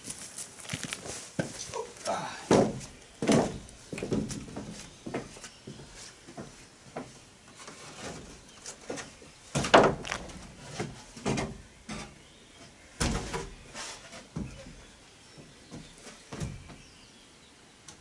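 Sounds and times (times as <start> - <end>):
wooden planks knocking and scraping: 2.4 - 12.2, 13.0 - 14.8.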